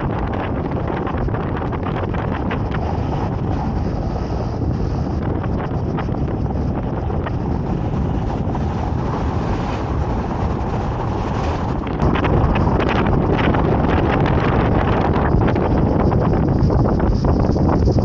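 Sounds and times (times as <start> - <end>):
wind buffeting the microphone: 0.0 - 18.0.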